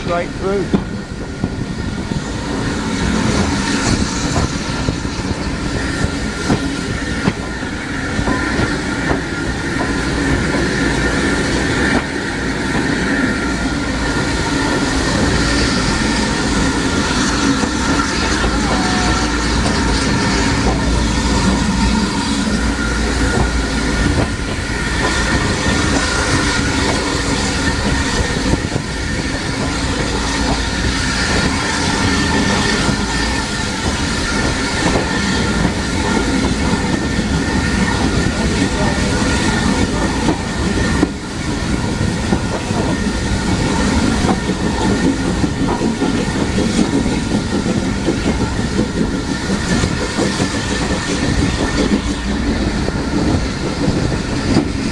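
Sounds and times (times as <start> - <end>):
train rumbling: 0.0 - 54.9.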